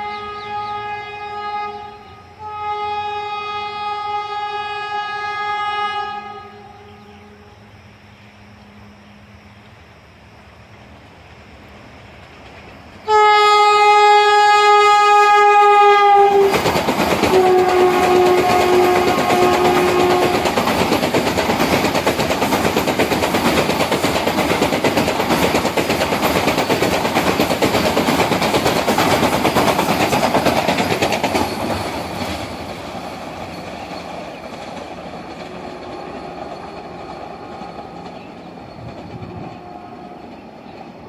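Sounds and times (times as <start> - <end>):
train passing with rumble: 0.0 - 41.0
train wheel clatter: 11.8 - 41.0.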